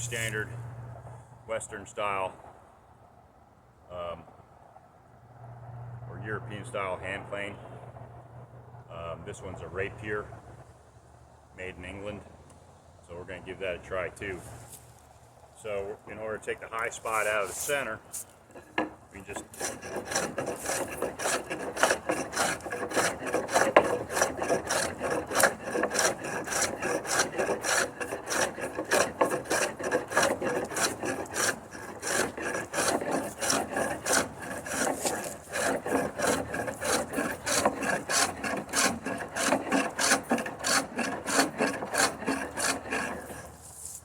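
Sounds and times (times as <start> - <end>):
hand plane shaving wood: 16.8 - 44.0.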